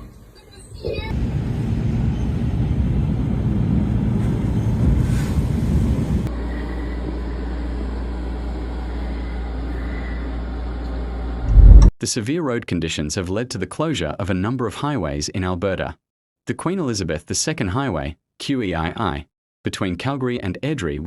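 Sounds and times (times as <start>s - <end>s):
low rumbling vehicle noise: 1.0s - 7.4s, 11.4s - 11.9s
steady low hum: 6.2s - 11.9s
loud low thump: 11.5s - 11.9s.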